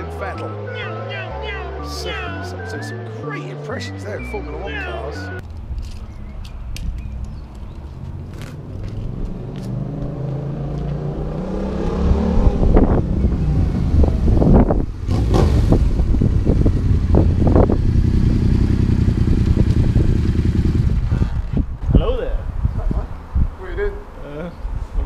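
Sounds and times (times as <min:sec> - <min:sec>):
motorcycle engine accelerating: 0:07.2 - 0:21.8.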